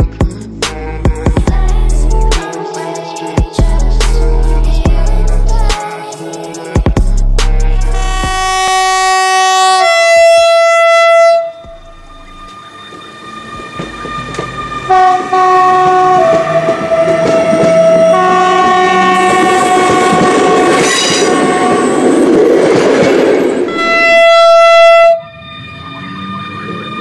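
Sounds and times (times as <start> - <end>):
train running on rails: 0.0 - 7.0, 7.6 - 27.0
two-tone locomotive horn blasts: 7.6 - 12.5, 13.8 - 22.2, 23.7 - 25.4.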